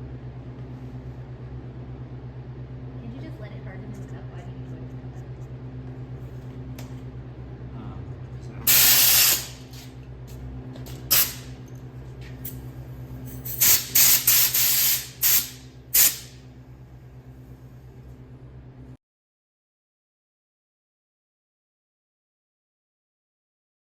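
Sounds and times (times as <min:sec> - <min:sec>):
low machine hum: 0:00.0 - 0:19.0
bursts of hissing: 0:08.7 - 0:09.6, 0:13.6 - 0:16.3.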